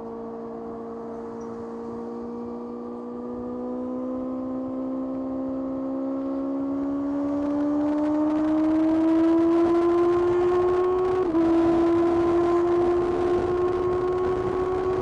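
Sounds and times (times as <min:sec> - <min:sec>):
motorcycle engine revving up: 0:06.6 - 0:15.0.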